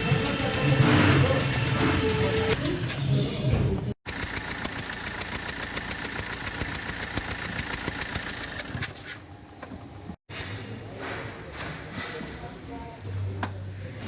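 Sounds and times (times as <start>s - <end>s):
diesel engine running: 0.0s - 2.6s
rapid engine ticking: 0.0s - 2.6s, 4.0s - 8.8s.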